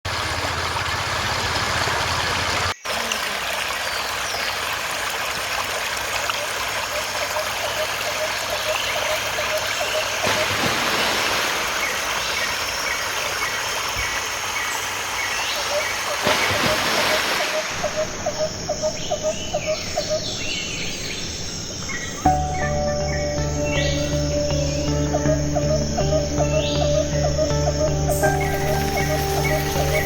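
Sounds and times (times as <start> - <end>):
waterfall rushing: 10.2 - 15.2, 15.8 - 18.2.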